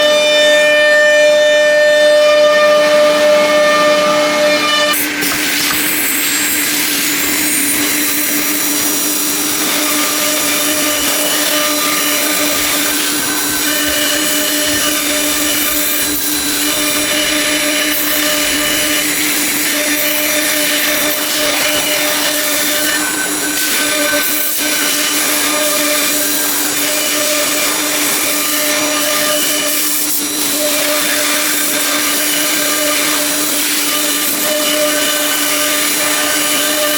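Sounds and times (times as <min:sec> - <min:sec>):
machine whine with hiss: 0:02.8 - 0:36.9.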